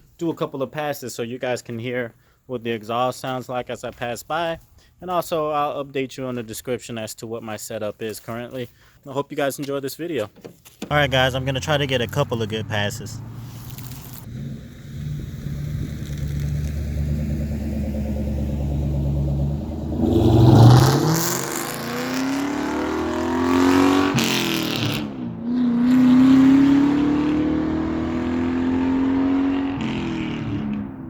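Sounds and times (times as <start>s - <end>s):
car engine accelerating hard: 10.9s - 31.0s.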